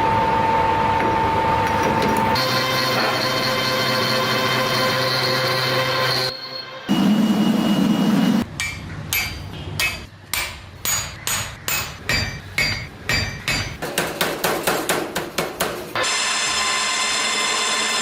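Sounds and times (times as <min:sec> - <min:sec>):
hammer striking steel on anvil: 0:08.4 - 0:15.8.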